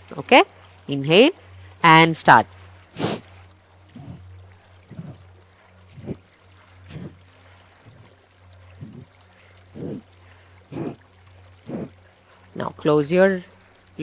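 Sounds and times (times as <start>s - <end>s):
faint flowing stream: 0.0s - 14.0s
sharp nasal exhales: 3.0s - 3.3s, 4.9s - 5.2s, 6.9s - 7.2s, 9.8s - 10.1s, 10.7s - 11.0s, 11.7s - 12.0s.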